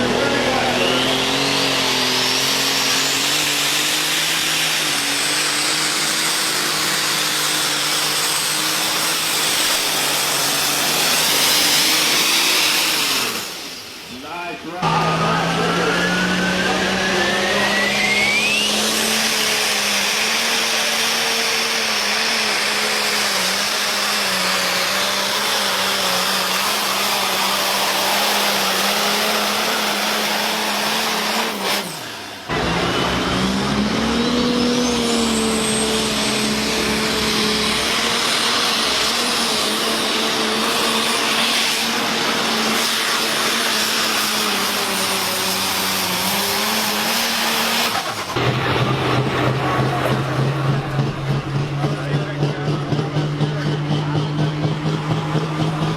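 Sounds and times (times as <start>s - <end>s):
tractor engine running hard: 0.0s - 55.9s
thin rising whistle: 14.9s - 18.9s.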